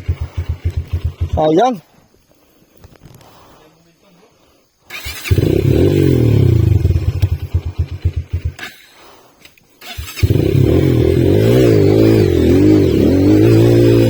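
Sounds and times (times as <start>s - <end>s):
motorcycle engine starting and running: 0.0s - 1.8s, 4.9s - 14.0s.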